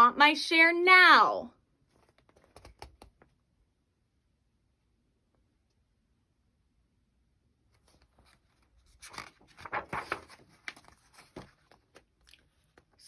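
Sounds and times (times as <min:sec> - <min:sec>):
crackling and rustling handling: 0:01.8 - 0:03.4, 0:07.7 - 0:13.0.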